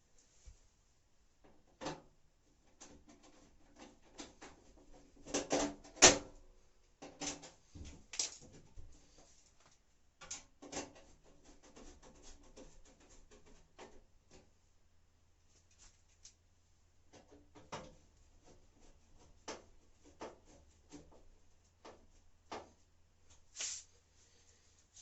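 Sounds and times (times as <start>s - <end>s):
clicks and knocks of machine parts: 7.0s - 8.6s, 10.2s - 11.1s.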